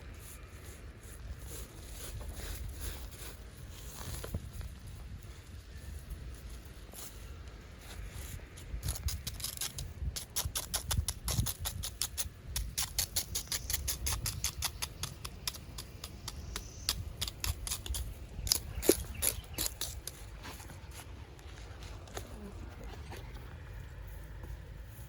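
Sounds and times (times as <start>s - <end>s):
rapid clicking and scraping: 8.6s - 23.7s.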